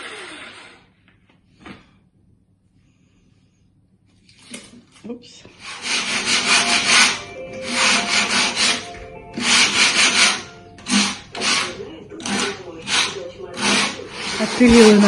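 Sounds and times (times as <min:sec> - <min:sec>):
tool scraping wood: 0:05.5 - 0:15.0
hand tool rasping wood: 0:05.6 - 0:15.0.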